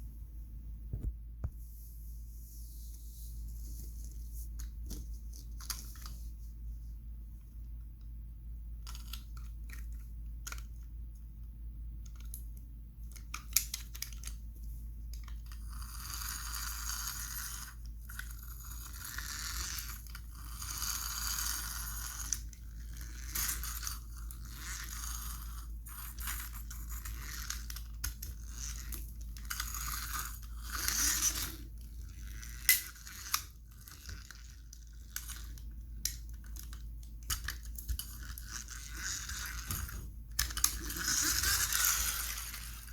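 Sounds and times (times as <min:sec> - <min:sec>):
steady low hum: 0:00.0 - 0:42.9
toy cars clicking and scraping: 0:08.8 - 0:10.7, 0:13.1 - 0:14.4, 0:15.1 - 0:42.9.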